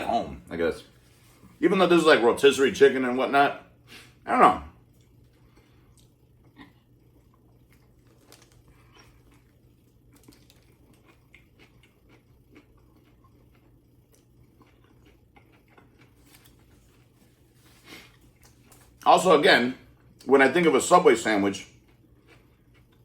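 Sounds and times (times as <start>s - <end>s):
low steady hum: 0.0s - 23.0s
person chewing food: 4.8s - 19.0s, 21.7s - 23.0s.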